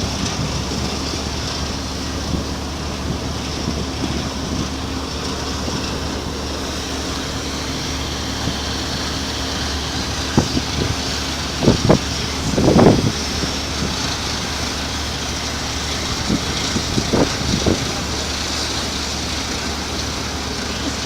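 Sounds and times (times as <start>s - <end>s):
ship engine droning: 0.0s - 21.0s
wind noise: 2.1s - 18.4s.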